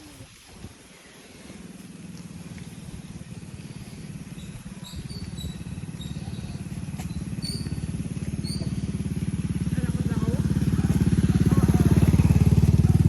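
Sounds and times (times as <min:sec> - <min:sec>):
small vehicle engine running: 0:00.0 - 0:13.0
faint high chirps: 0:03.4 - 0:09.0.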